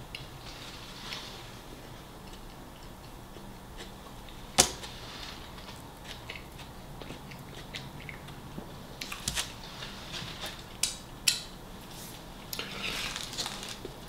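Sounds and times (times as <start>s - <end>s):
chewing a sandwich: 0.1s - 10.8s.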